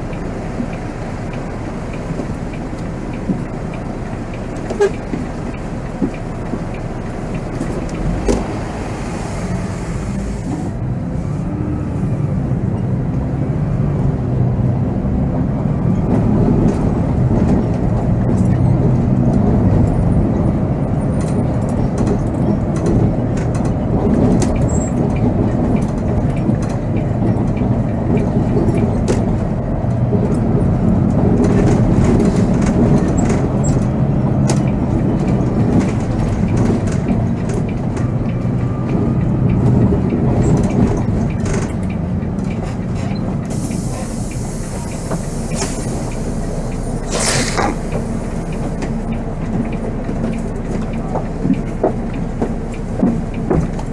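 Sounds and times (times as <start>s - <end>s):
bus diesel engine running: 0.0s - 53.9s
rattles and clicks: 21.1s - 43.9s, 47.5s - 53.9s.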